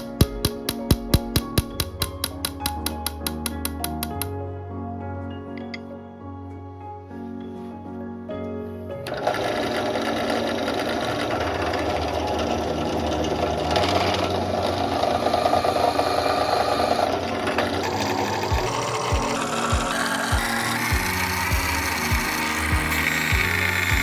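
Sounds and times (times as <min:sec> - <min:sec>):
background music: 0:00.0 - 0:24.0
workshop machine clattering: 0:09.1 - 0:24.0.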